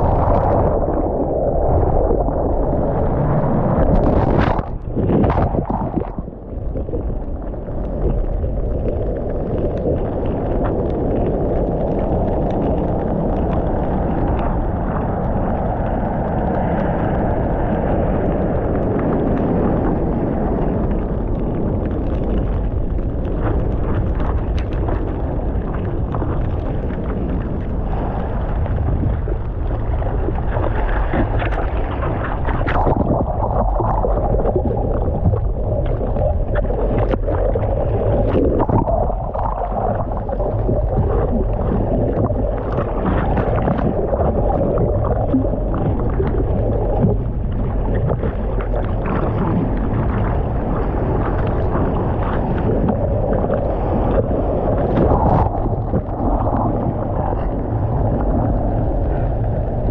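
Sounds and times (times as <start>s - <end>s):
water rushing: 0.0s - 22.6s, 23.3s - 59.9s
wind on microphone: 0.0s - 59.9s.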